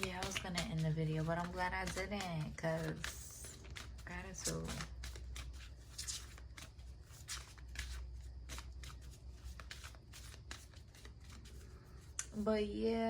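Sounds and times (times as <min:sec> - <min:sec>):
cards being shuffled: 0:00.0 - 0:12.4.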